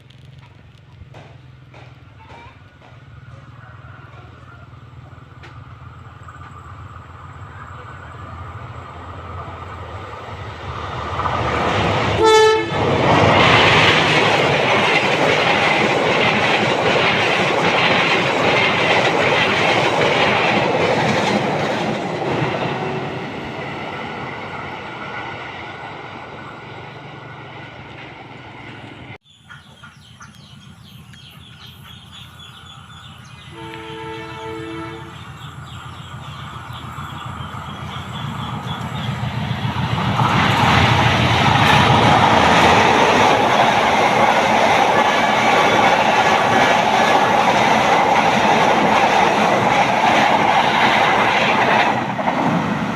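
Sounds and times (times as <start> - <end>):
train rumble and wheel clatter: 0.0 - 52.9
train horn blast: 12.2 - 13.1, 33.4 - 35.4.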